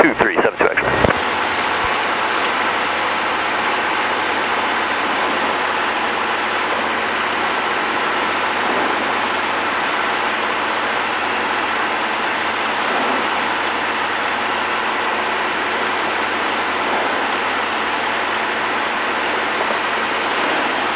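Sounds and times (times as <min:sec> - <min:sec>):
faint low hum: 0:00.0 - 0:02.0.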